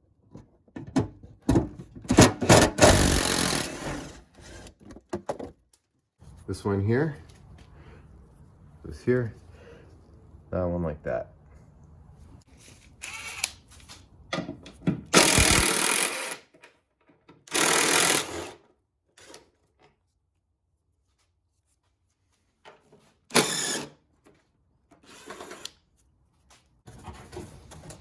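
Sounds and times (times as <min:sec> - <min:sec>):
cordless drill spinning: 0:02.8 - 0:04.1, 0:13.0 - 0:13.6, 0:15.2 - 0:16.4, 0:17.5 - 0:18.6, 0:23.3 - 0:23.9.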